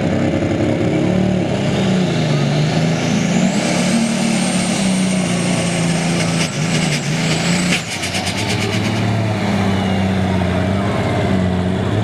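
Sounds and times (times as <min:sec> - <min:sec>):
tractor engine revving: 0:00.0 - 0:12.0.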